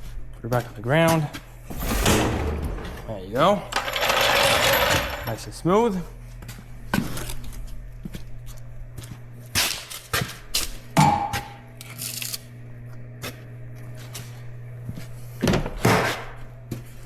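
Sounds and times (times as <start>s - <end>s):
low electrical hum: 0.0s - 17.0s
metal equipment clanking: 1.7s - 5.6s.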